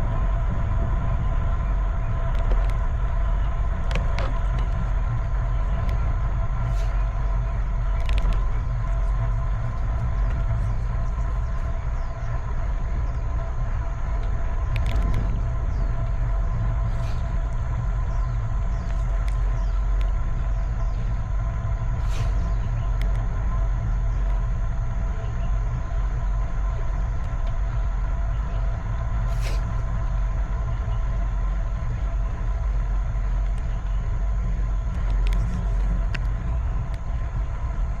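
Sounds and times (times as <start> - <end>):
bicycle road rumble: 0.0 - 38.0
faint steady whine: 0.0 - 38.0
wind: 0.0 - 38.0
sharp clicks from bumps: 2.1 - 12.4, 14.1 - 21.2, 27.0 - 37.5.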